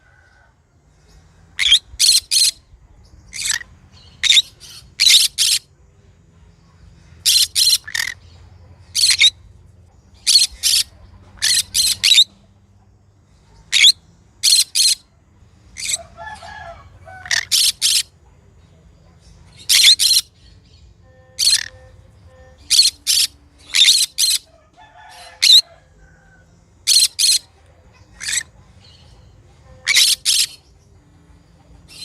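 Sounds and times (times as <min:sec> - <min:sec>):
parrot screeching: 0:17.1 - 0:18.0, 0:21.4 - 0:21.7, 0:22.7 - 0:25.7, 0:26.9 - 0:27.4, 0:28.2 - 0:28.5, 0:29.8 - 0:30.5.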